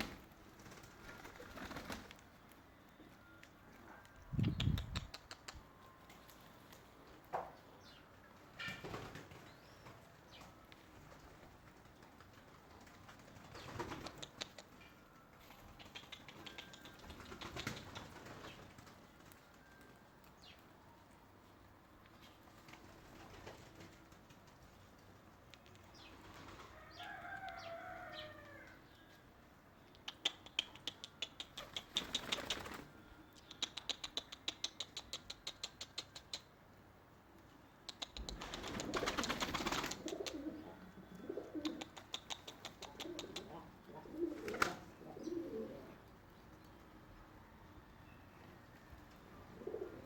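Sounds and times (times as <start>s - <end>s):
birds flapping wings: 0.0s - 2.3s, 8.7s - 10.1s, 10.9s - 14.5s, 15.6s - 19.7s, 22.5s - 24.8s, 31.6s - 32.9s, 38.1s - 40.5s, 44.2s - 44.9s.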